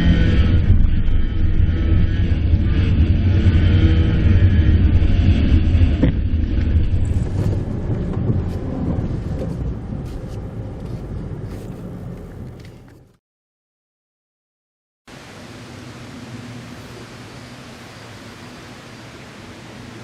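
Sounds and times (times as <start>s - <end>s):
car engine and road noise: 0.0s - 13.2s, 15.1s - 20.0s.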